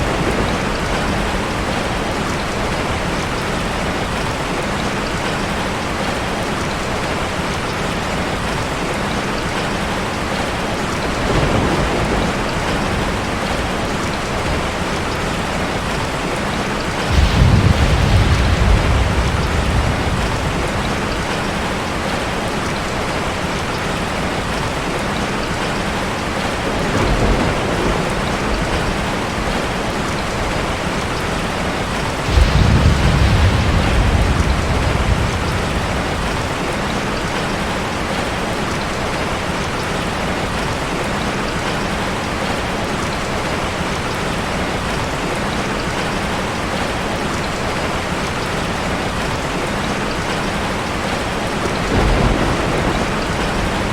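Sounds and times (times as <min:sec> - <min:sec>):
thunder rumbling: 0:00.0 - 0:05.5, 0:09.4 - 0:39.4, 0:50.4 - 0:53.9
heavy rain on a car: 0:00.0 - 0:53.9.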